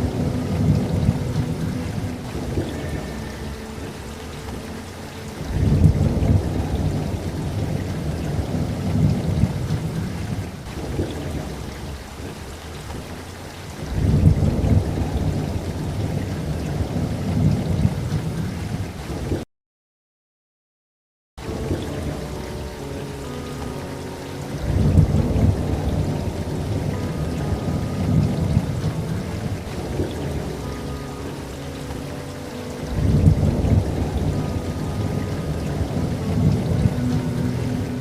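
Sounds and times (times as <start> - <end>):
steady rain: 0.0 - 19.4, 21.4 - 38.0
thunder rolling: 5.4 - 19.4, 32.8 - 37.4.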